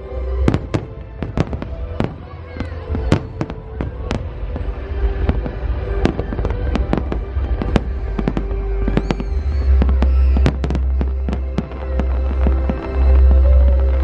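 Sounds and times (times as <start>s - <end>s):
fireworks bursting: 0.3s - 14.0s.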